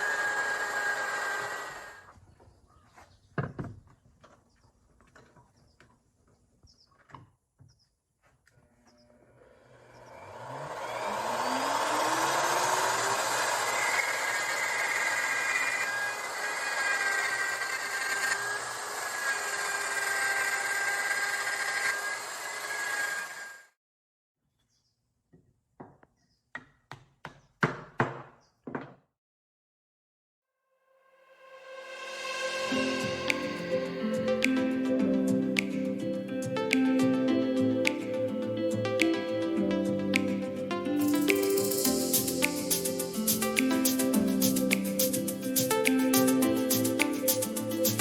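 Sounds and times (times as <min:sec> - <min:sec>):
power tool whining on wood: 0:00.0 - 0:02.2, 0:09.1 - 0:23.7.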